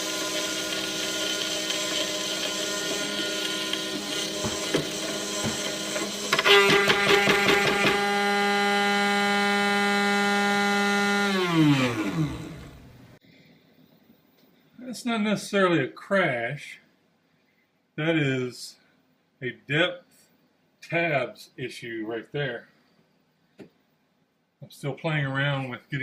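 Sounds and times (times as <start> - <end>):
router spindle whining: 0.0 - 13.2.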